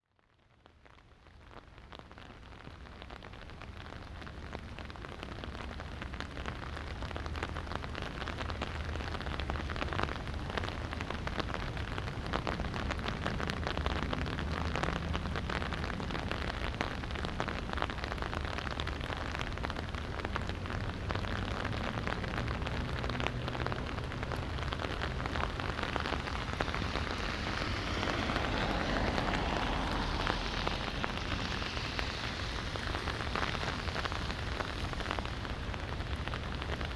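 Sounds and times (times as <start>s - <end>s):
raindrops ticking on surfaces: 0.2s - 36.9s.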